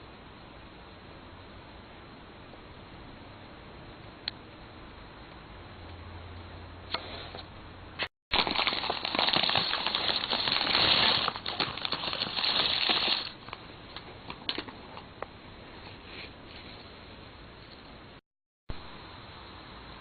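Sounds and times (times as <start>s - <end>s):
plastic packaging crinkling: 8.3s - 15.0s.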